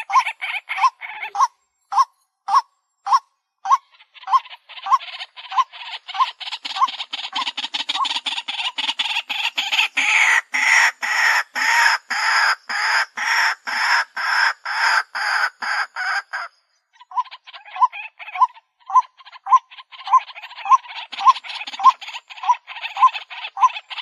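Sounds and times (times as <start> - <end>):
bird calling repeated notes: 0.0 - 10.3.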